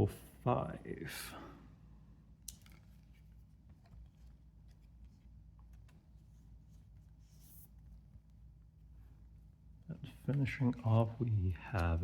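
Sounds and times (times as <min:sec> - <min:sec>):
low steady hum: 0:00.0 - 0:12.0
trading cards clicking and rustling: 0:02.5 - 0:05.0.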